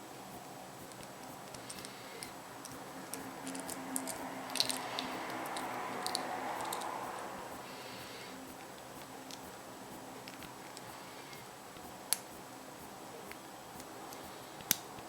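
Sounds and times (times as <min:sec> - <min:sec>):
small clicks and snaps: 0:00.8 - 0:07.0, 0:13.3 - 0:15.0.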